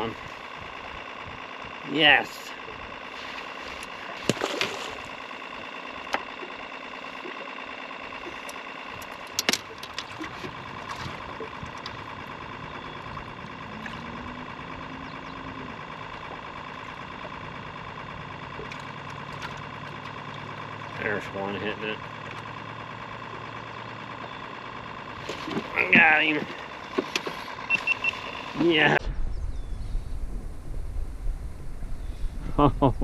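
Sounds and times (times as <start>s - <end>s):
motor humming: 0.0s - 33.0s
sharp clicks and knocks: 8.4s - 10.6s.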